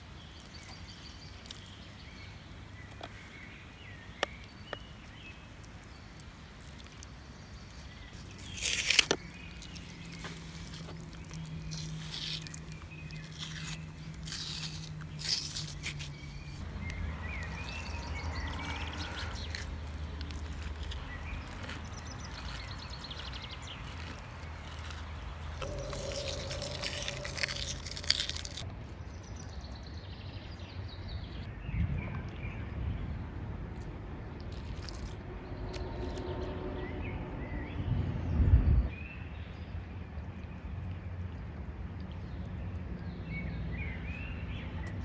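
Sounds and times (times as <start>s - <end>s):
loud rustle or scrape: 8.1s - 28.6s
faint bird chirps: 21.4s - 28.6s.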